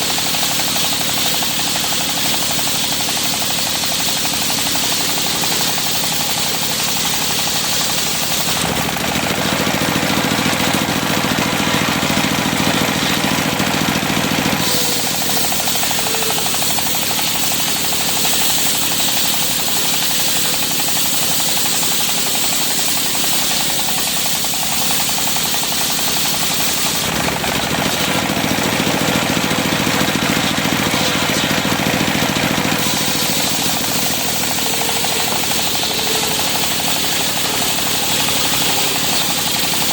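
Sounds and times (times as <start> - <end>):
circular sawmill sawing wood: 0.0 - 39.9.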